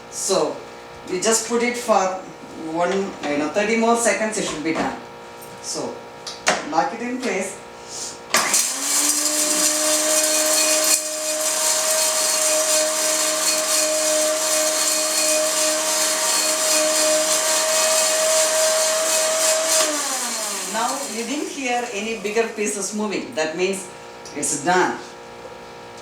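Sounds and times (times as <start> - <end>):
mixer grinder motor whining: 8.3 - 23.8.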